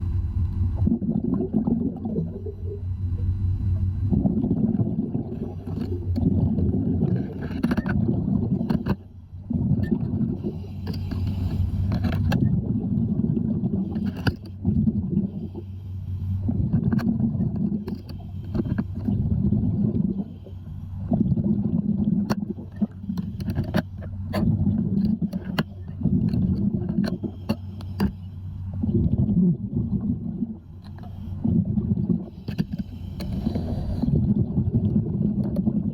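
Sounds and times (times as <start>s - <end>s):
steady low hum: 0.0s - 35.9s
diver breathing with bubbles: 0.7s - 35.9s.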